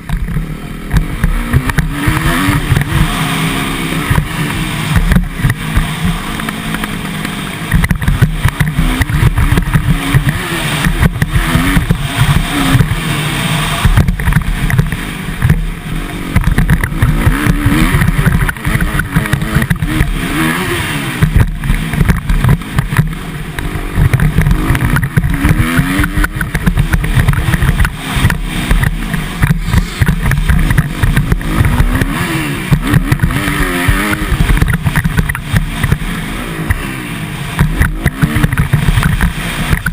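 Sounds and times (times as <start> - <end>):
dirt bike engine revving: 0.0 - 39.9
low wind rumble: 0.0 - 39.9.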